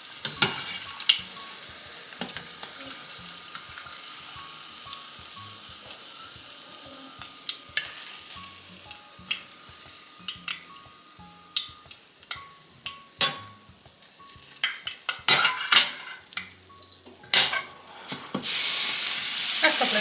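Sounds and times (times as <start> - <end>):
food sizzling in hot oil: 0.0 - 20.0
utensil clicking against pan: 2.2 - 4.1, 9.2 - 10.9, 11.5 - 16.6.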